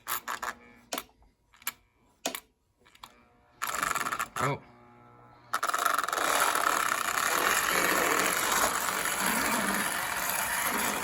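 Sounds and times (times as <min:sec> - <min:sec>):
model train electric motor: 0:02.9 - 0:11.0.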